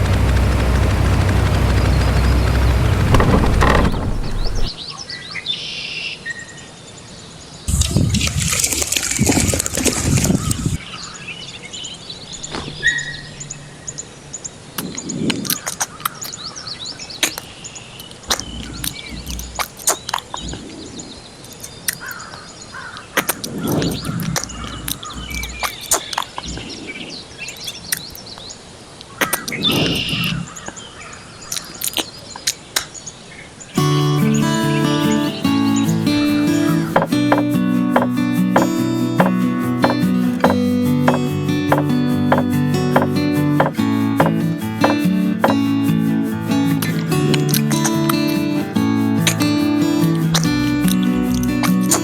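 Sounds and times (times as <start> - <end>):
low motor sound: 0.0 - 4.7, 18.3 - 19.8, 23.9 - 25.7, 36.0 - 45.6
birds chirping: 0.0 - 4.8, 15.6 - 45.7
rustling scraping noise: 2.9 - 4.7.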